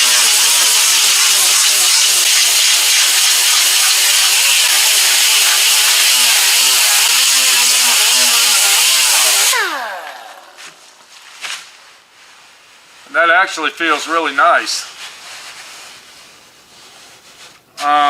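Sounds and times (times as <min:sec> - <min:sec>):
grinder spinning down whine: 0:00.0 - 0:10.8
power grinder on sheet metal: 0:00.0 - 0:10.8.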